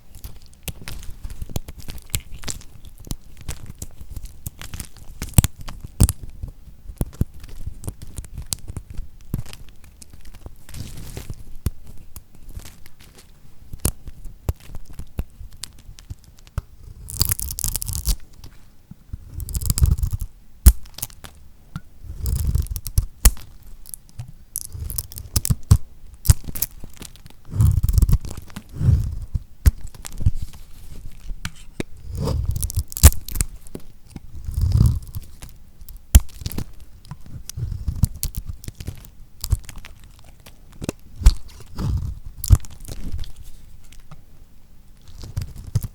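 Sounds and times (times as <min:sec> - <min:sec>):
knife cutting through coated soap: 0:31.4 - 0:44.0.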